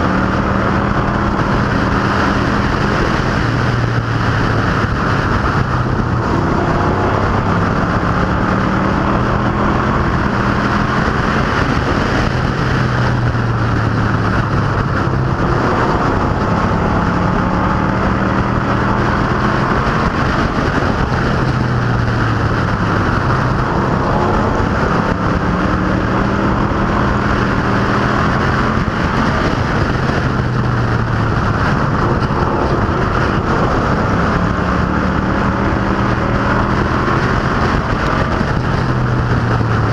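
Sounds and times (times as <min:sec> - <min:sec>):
racing car engines droning: 0:00.0 - 0:39.9.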